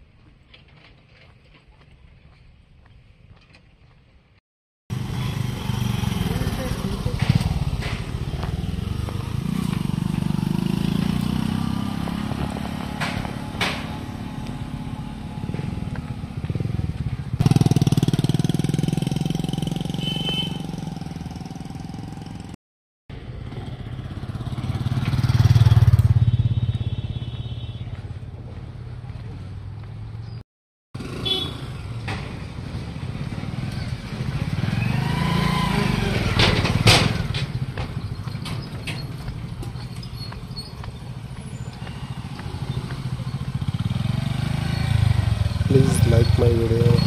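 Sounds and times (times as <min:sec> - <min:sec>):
motorcycle engine running: 0:04.9 - 0:13.5, 0:14.2 - 0:22.5, 0:41.8 - 0:47.0.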